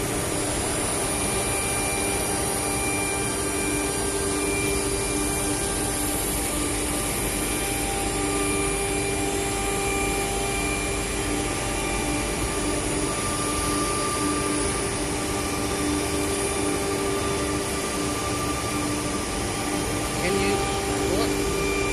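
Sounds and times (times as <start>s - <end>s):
cnc router whine: 0.0s - 21.9s.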